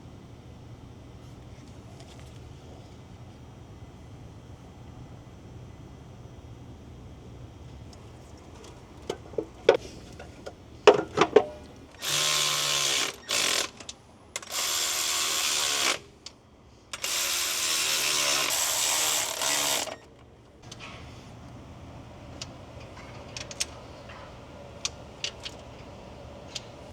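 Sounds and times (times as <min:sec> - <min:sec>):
metal clicks and knocks: 0:08.6 - 0:11.7
power tool motor running: 0:12.0 - 0:13.8, 0:14.4 - 0:16.1, 0:17.0 - 0:20.1.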